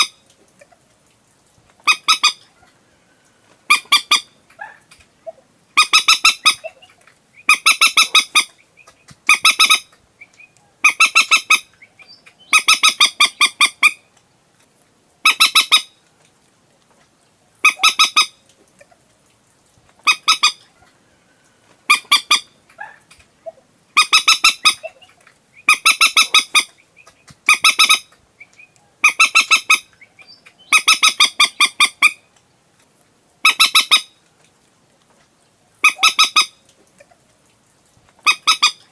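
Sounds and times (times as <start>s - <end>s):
moorhen stuttering calls: 1.8s - 2.6s, 3.7s - 14.1s, 15.2s - 16.0s, 17.6s - 19.0s, 20.0s - 20.8s, 21.9s - 32.3s, 33.4s - 34.2s, 35.8s - 37.2s, 38.2s - 38.9s.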